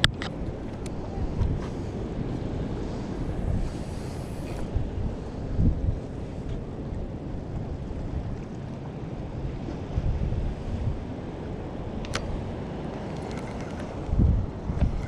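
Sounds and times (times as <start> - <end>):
sea waves washing: 0.0 - 15.0
wind buffeting microphone: 0.0 - 15.0.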